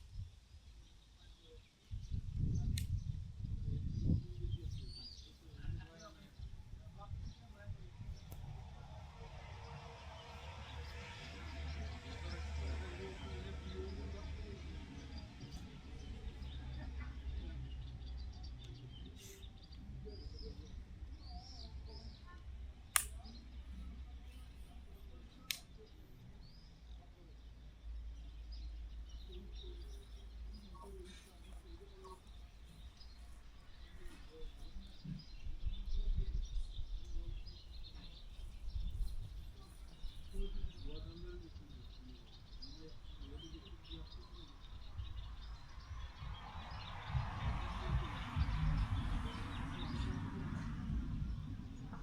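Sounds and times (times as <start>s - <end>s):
small birds chirping: 0.0s - 52.0s
wind on microphone: 1.9s - 9.0s, 34.3s - 41.8s, 44.8s - 52.0s
sharp click: 22.9s - 23.3s
steady low rumble: 40.8s - 52.0s.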